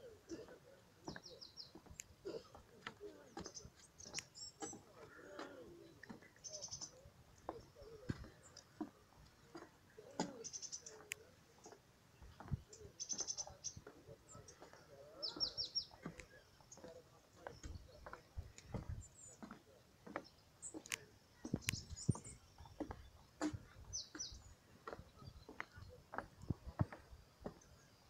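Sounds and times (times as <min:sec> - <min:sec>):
footsteps on wooden boardwalk: 0:00.0 - 0:28.0
small bird chirping: 0:09.6 - 0:27.9.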